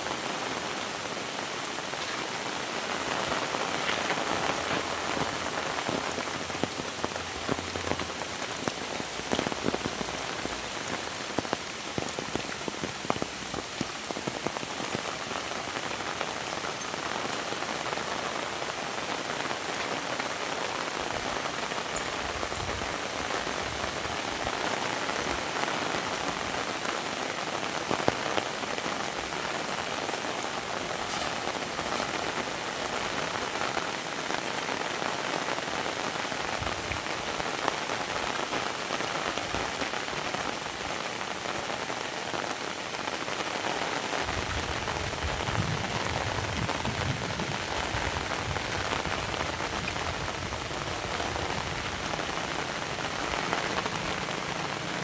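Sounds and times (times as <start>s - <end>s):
close raindrop hits: 0.0s - 55.0s
heavy rain falling: 0.0s - 55.0s.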